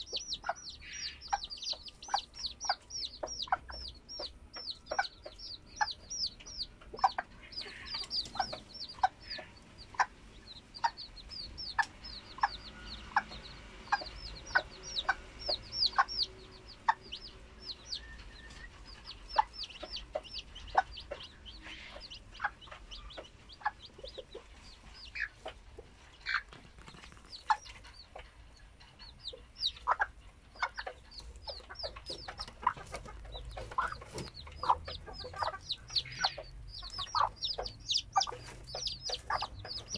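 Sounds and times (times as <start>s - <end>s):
low short chick calls: 0.0s - 10.2s, 31.5s - 39.9s
chicks peeping: 0.0s - 39.9s.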